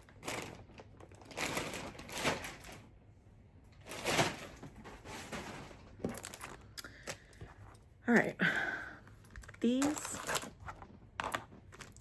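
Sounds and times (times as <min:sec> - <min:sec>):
packaging rustling: 0:00.0 - 0:02.9, 0:03.8 - 0:07.2, 0:09.2 - 0:12.0.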